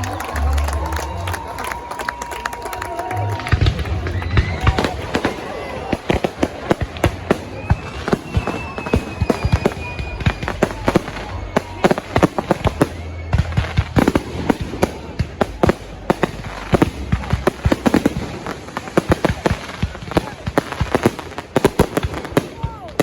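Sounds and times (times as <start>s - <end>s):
fireworks bangs and pops: 1.2s - 23.0s
thin high whistle: 7.4s - 13.8s.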